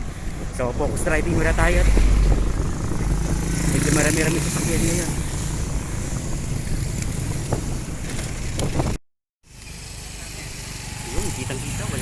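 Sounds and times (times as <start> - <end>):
wind noise: 0.0 - 9.0
road traffic: 0.0 - 12.0.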